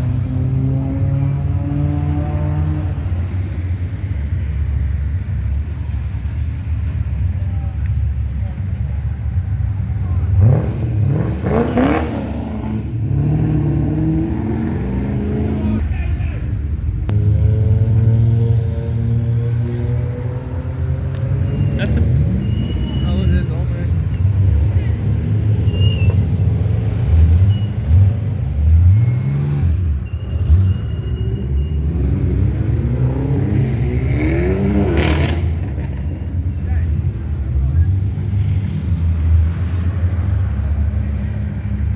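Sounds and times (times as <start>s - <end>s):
car engine revving: 0.0s - 3.5s, 9.8s - 15.8s, 17.0s - 30.6s, 31.6s - 41.9s
car accelerating: 0.0s - 3.8s, 9.5s - 15.8s, 17.0s - 41.9s
car engines passing: 0.0s - 41.9s.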